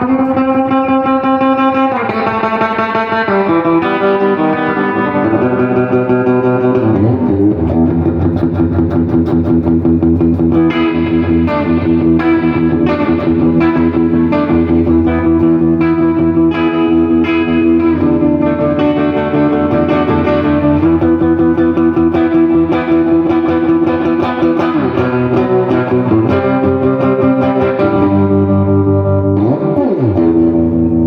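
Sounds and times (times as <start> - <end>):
electric guitar chords ringing: 0.0 - 31.0.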